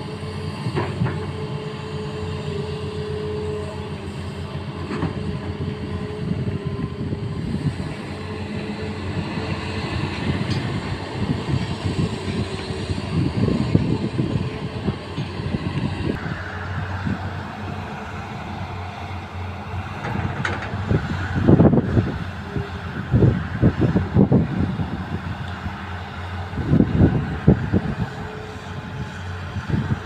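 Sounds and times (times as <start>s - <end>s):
excavator diesel engine running: 0.0s - 30.0s
clanking and rattling: 20.0s - 20.9s.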